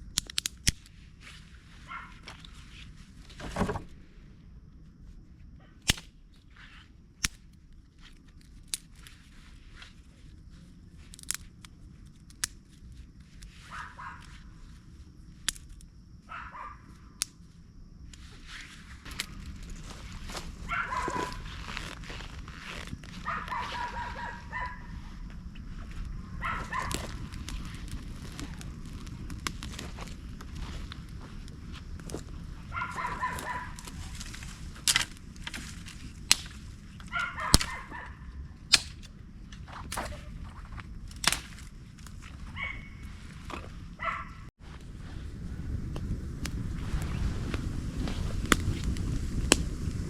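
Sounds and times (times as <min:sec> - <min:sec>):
sharp clicks: 0:00.0 - 0:00.9, 0:38.7 - 0:39.1
low rumble: 0:17.0 - 0:50.0
bird calling: 0:19.3 - 0:21.7, 0:23.2 - 0:25.2, 0:32.7 - 0:34.0, 0:42.5 - 0:43.2.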